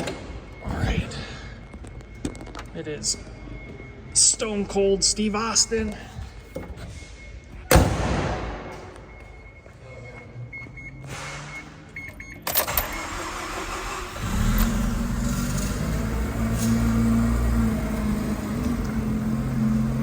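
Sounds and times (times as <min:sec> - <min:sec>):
starter motor cranking: 0:12.6 - 0:17.3
engine idling: 0:12.9 - 0:20.0.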